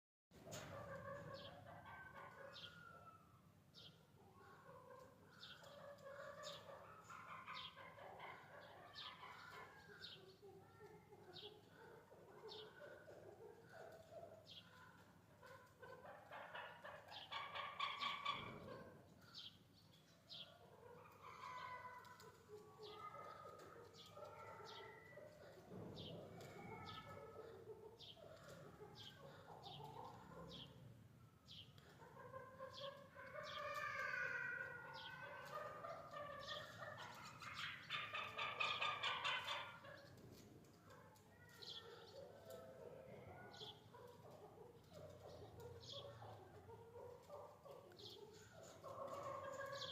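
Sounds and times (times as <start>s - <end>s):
partridge clucking calls: 14.6s - 18.9s, 35.0s - 40.2s.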